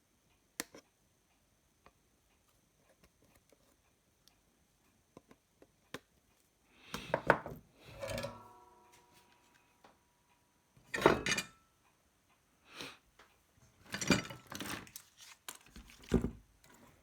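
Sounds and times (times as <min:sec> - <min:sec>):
tools clattering with ringing: 0:07.9 - 0:09.3, 0:10.9 - 0:11.6.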